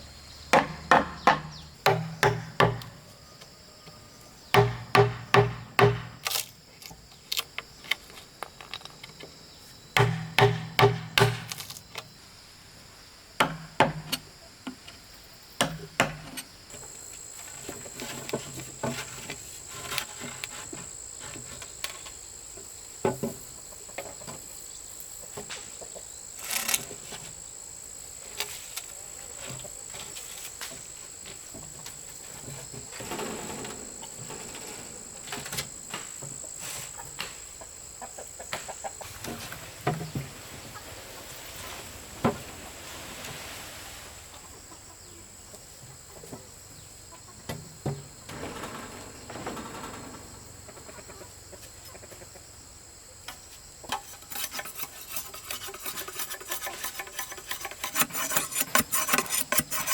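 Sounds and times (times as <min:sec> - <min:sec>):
high thin insect drone: 0:16.5 - 0:45.1.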